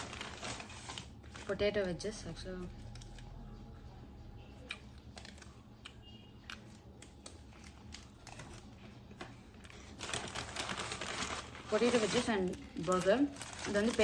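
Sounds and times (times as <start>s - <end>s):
paper packaging crinkling: 0.0s - 1.7s, 7.1s - 14.0s.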